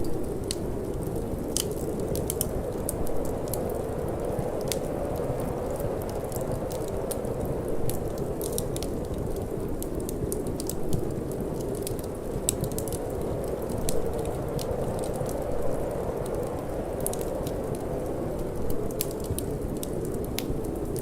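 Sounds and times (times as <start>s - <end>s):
low rush of wind: 0.0s - 21.0s
wood fire crackling: 0.0s - 21.0s.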